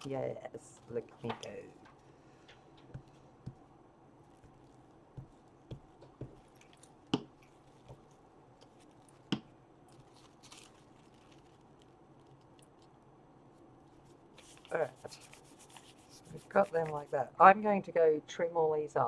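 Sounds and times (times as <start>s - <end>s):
paper rustling: 0.0s - 3.6s, 9.9s - 17.2s.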